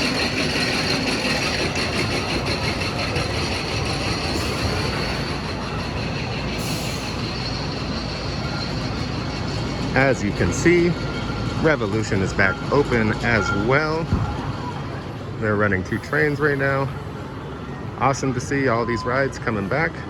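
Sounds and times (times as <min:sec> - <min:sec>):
roller coaster rolling on track: 0:00.0 - 0:20.0.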